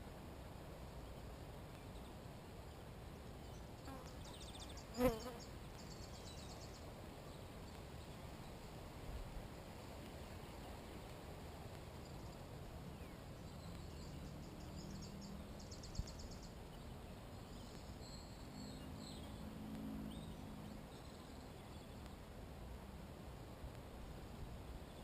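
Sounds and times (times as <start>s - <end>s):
faint birdsong trill: 0.8s - 8.8s, 11.9s - 22.3s.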